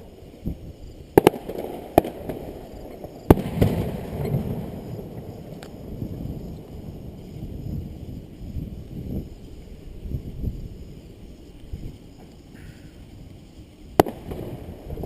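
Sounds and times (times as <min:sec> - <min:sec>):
fireworks bursting with bangs: 0:00.0 - 0:09.2, 0:13.9 - 0:15.0.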